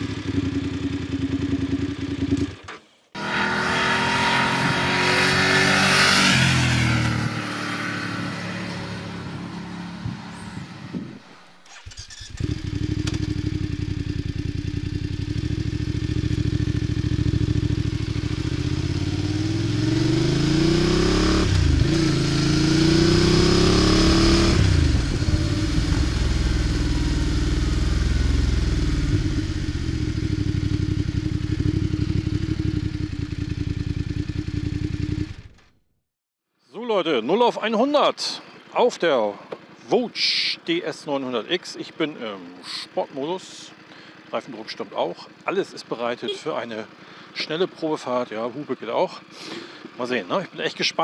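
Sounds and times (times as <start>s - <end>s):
motorcycle engine accelerating: 0.0s - 35.7s.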